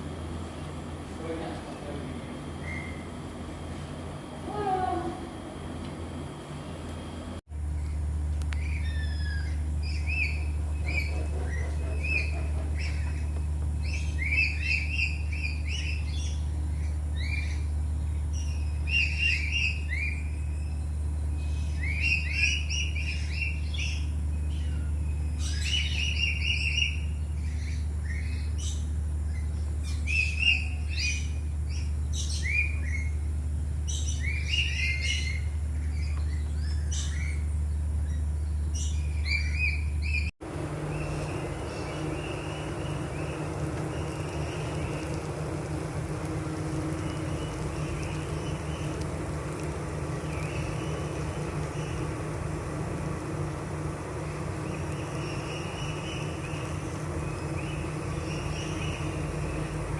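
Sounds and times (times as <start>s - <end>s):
birds chirping: 0.0s - 59.9s
steady low hum: 0.0s - 59.9s.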